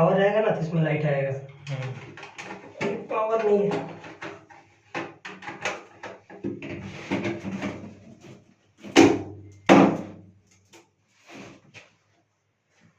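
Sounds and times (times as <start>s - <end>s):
knocks and clatter of handling: 1.8s - 10.8s.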